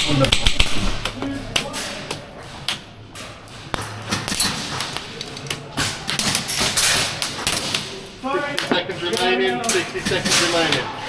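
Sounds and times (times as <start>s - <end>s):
sharp clicks and knocks: 0.0s - 8.0s.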